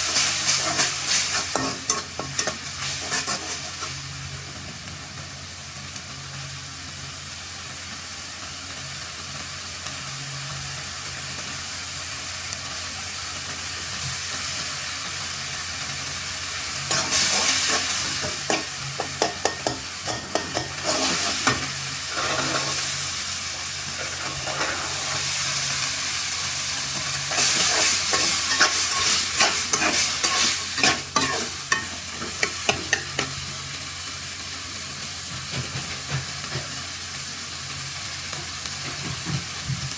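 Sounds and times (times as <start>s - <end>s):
curry sizzling in frying pan: 0.0s - 39.9s
spoon scraping pan: 0.1s - 4.0s, 16.9s - 22.9s, 23.9s - 25.3s, 27.3s - 33.3s.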